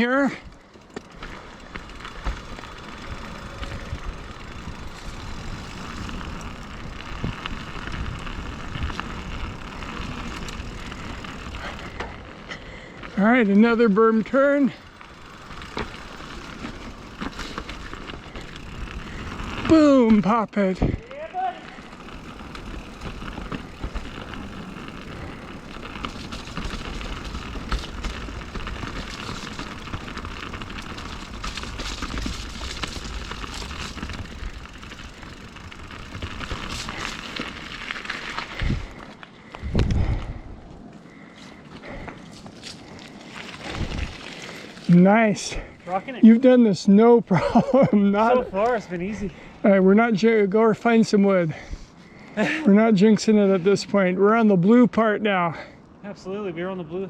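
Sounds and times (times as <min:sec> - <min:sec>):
bike clicks and rattles: 0:00.0 - 0:46.4, 0:47.3 - 0:49.6
tyres rolling on dirt: 0:00.0 - 0:57.0
wind on microphone: 0:38.5 - 0:39.0, 0:39.6 - 0:40.7, 0:43.6 - 0:44.2.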